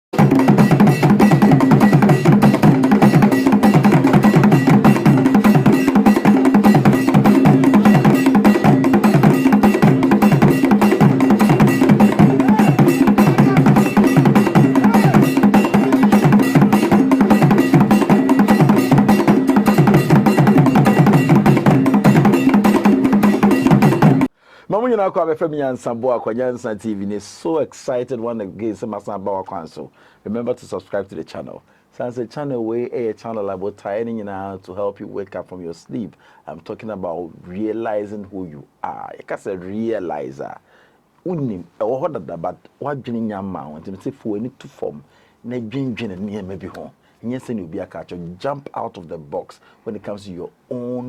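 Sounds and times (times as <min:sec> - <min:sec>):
fast dense percussion music: 0:00.1 - 0:24.3.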